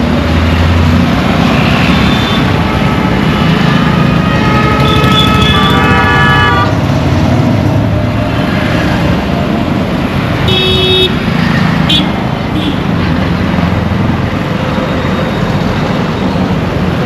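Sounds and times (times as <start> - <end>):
traffic engines rumbling: 0.0 - 17.0
vehicle horns honking: 1.4 - 6.8, 10.5 - 11.2.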